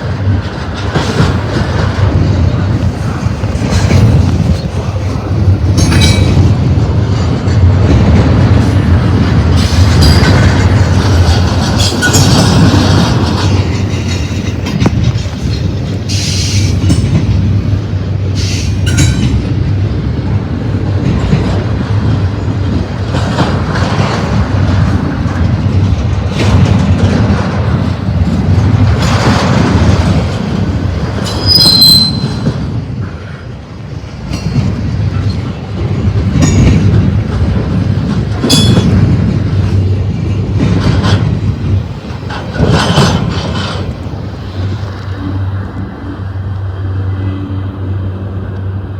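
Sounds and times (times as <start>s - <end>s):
train wheels rumbling on rails: 0.0s - 48.9s
high-pitched wheel squeal: 31.3s - 32.5s.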